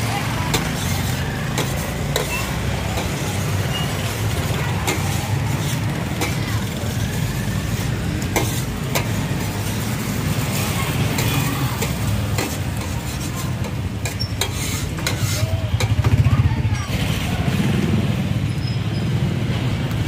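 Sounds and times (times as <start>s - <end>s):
metal spatula scraping griddle: 0.0s - 16.0s
patties frying on a griddle: 0.0s - 16.0s.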